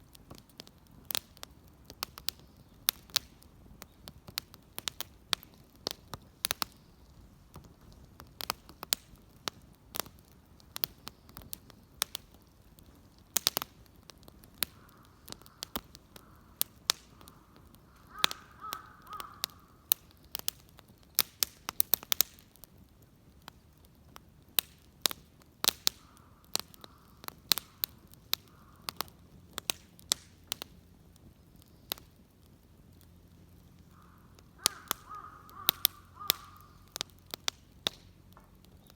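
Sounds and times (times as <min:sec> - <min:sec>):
bonfire crackling and popping: 0:00.0 - 0:38.9
crows cawing: 0:14.7 - 0:19.9, 0:26.0 - 0:27.8, 0:28.5 - 0:29.0, 0:33.9 - 0:37.0.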